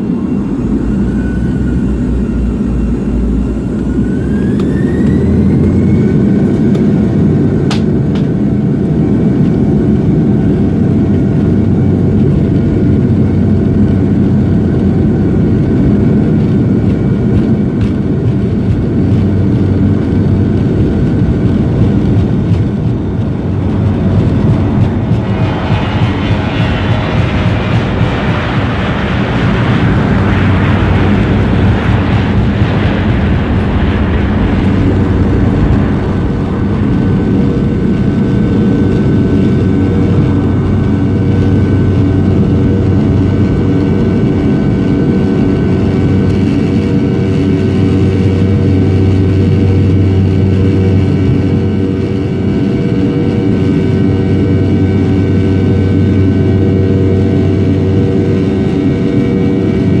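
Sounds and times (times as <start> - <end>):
jet engines drone: 0.0 - 60.0
rushing noise: 15.1 - 60.0.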